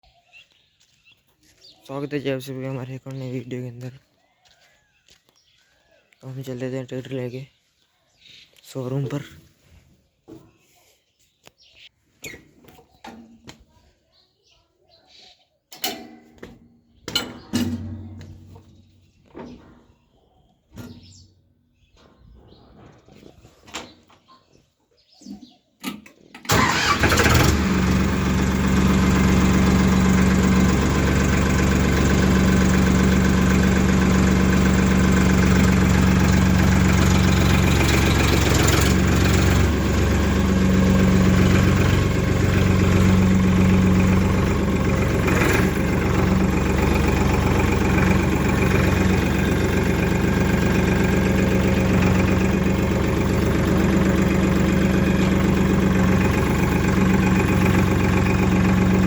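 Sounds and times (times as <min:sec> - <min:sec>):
diesel tractor engine idling: 0:26.5 - 0:59.0.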